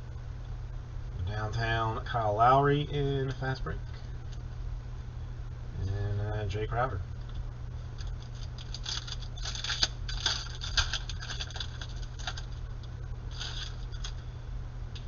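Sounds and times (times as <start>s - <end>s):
low steady hum: 0.0s - 15.0s
cards flipping through hands: 8.0s - 12.6s, 13.3s - 14.2s.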